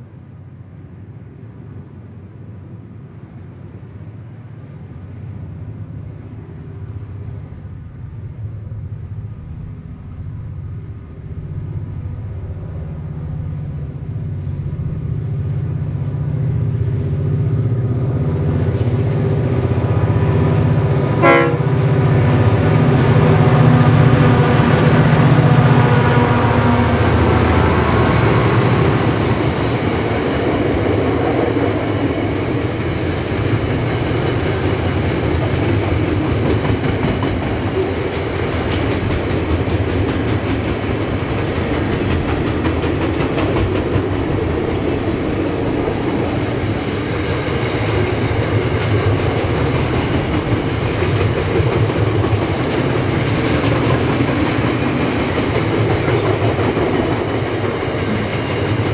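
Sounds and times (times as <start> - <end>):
diesel locomotive engine: 0.0 - 58.9
train wagons rolling: 13.5 - 58.9.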